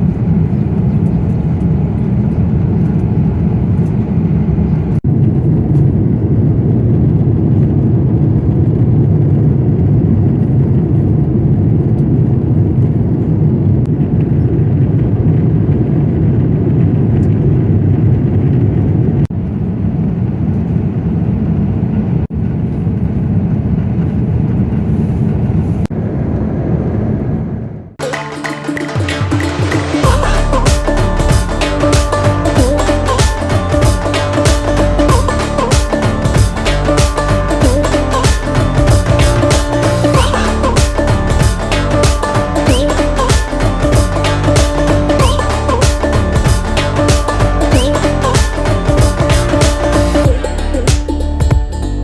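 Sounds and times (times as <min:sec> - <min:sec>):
airliner cabin engine rumble: 0:00.0 - 0:28.0.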